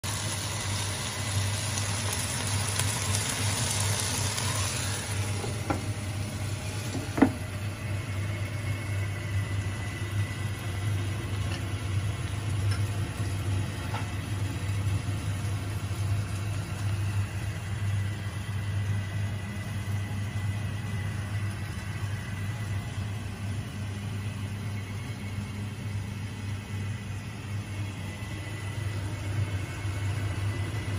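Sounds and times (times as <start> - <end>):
food sizzling in skillet: 0.0 - 20.4
steady low hum: 0.1 - 30.9.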